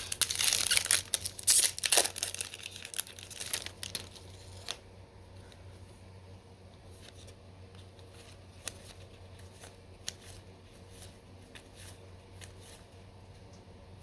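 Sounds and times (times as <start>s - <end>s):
trading cards flipped by hand: 7.0s - 12.9s.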